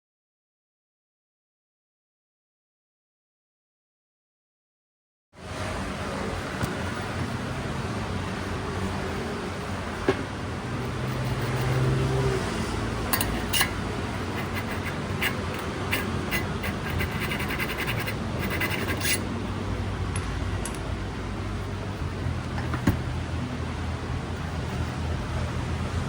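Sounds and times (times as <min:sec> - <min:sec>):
steady low hum: 0:05.8 - 0:26.0
metal hand tools clicking: 0:13.1 - 0:19.2.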